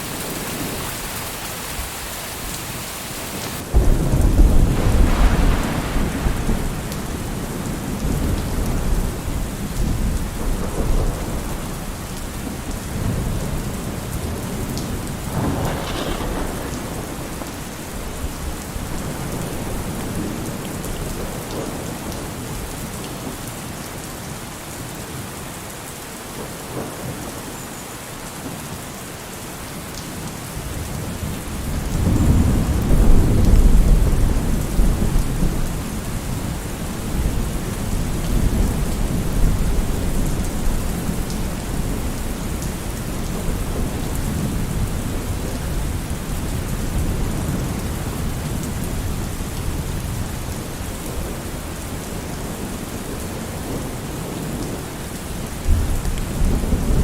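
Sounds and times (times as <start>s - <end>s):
heavy rain falling: 0.0s - 57.0s
rolling thunder: 3.5s - 22.7s, 31.0s - 52.2s.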